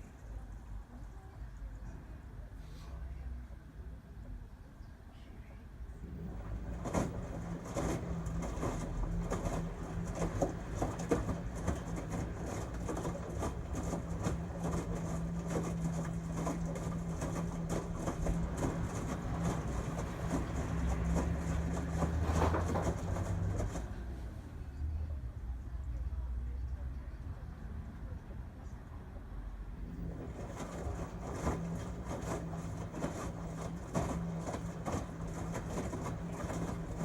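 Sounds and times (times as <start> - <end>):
washing machine motor hum: 6.0 - 25.0, 29.7 - 37.0
washing machine drum sloshing: 6.1 - 24.2, 29.9 - 37.0.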